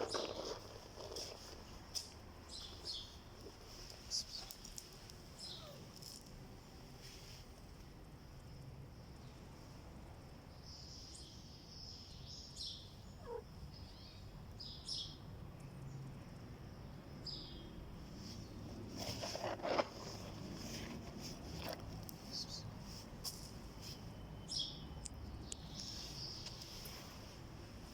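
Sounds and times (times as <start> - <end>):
falling bird chirps: 5.4 - 5.8.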